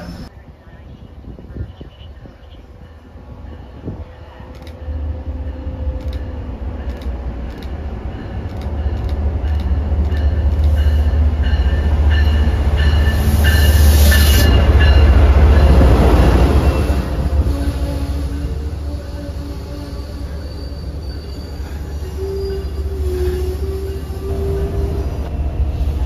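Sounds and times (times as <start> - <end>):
train rumble: 0.0 - 26.0
high squealing tones: 17.5 - 25.3.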